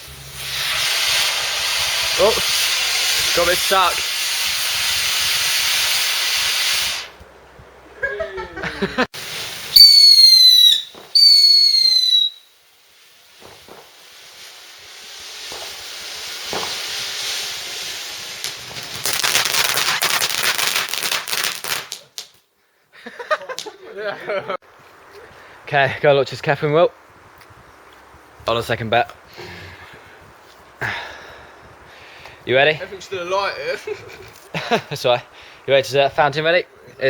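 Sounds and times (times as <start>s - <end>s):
firework hissing burn: 0.0s - 7.2s, 9.1s - 22.4s
firework whistles: 0.0s - 7.2s, 9.2s - 22.0s
firework crackling: 0.0s - 7.3s, 8.9s - 22.5s.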